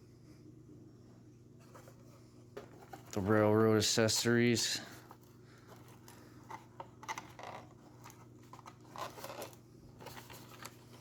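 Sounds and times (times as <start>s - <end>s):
cardboard scraping: 5.0s - 11.0s.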